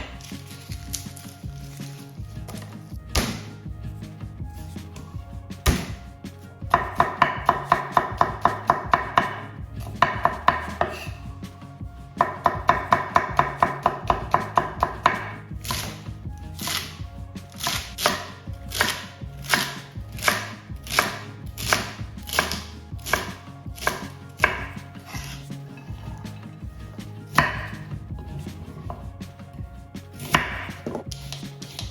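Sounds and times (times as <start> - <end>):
knife chopping on cutting board: 18.1 - 25.3.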